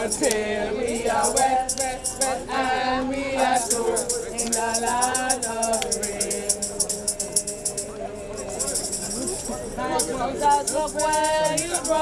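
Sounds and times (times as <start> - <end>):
group singing a gospel hymn: 0.0 - 12.0
hand percussion shaking: 0.0 - 12.0.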